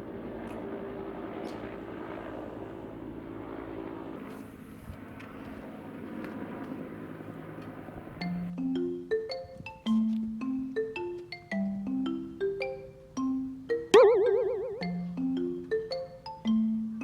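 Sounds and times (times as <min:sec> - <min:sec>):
marimba-style music: 0:08.2 - 0:17.0.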